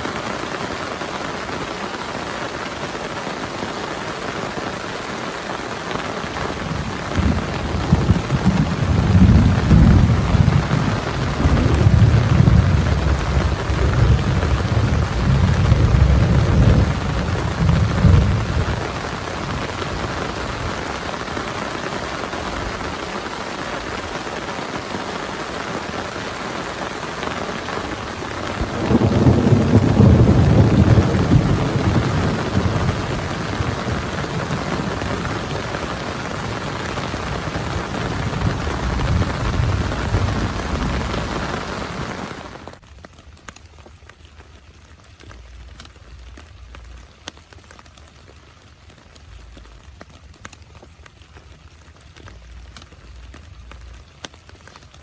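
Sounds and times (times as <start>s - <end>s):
heavy rain: 0.0s - 55.0s
rolls of thunder: 6.6s - 20.9s, 28.4s - 42.6s.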